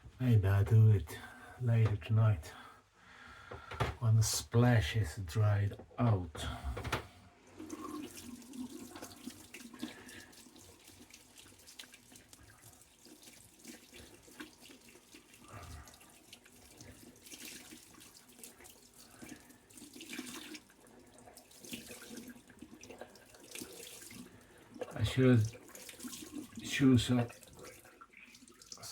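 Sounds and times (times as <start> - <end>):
water running from tap into sink: 7.5 - 28.9.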